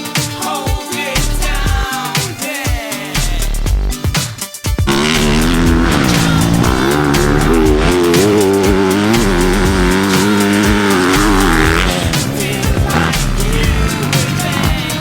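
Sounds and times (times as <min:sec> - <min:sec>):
background music: 0:00.0 - 0:15.0
dirt bike engine running: 0:04.8 - 0:15.0.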